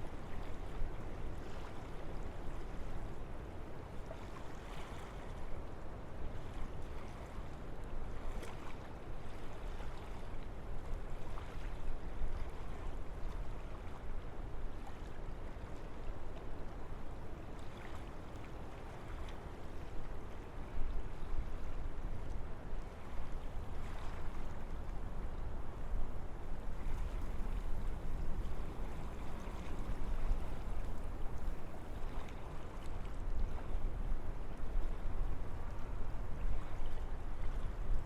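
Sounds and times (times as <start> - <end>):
wind through trees: 21.4 - 32.6.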